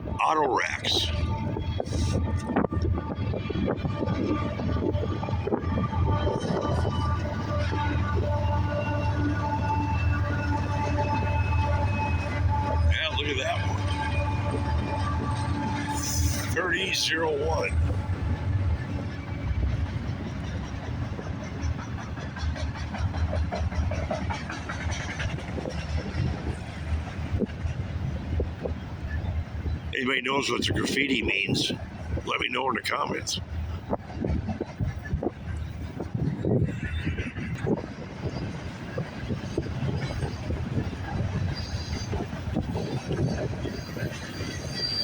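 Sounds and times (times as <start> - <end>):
train wheels rumbling on rail: 0.0 - 45.0
wheels clattering over rail joints: 17.7 - 29.9
high wheel squeal: 39.8 - 45.0.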